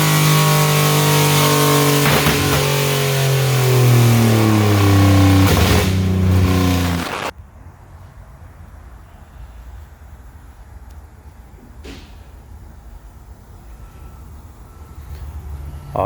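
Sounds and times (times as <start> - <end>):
car engine winding down: 0.0 - 7.3.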